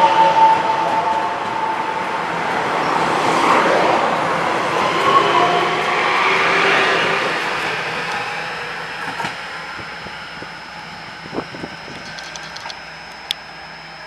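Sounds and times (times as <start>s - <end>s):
train passing: 0.0s - 14.0s
faint clicks: 11.9s - 13.5s.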